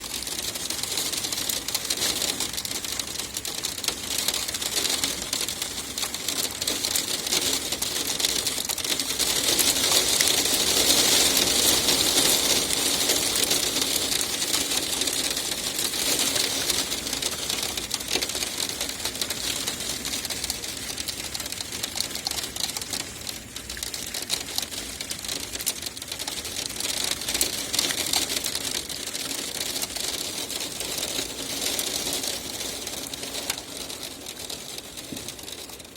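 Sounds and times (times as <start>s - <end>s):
hail falling: 0.0s - 35.9s.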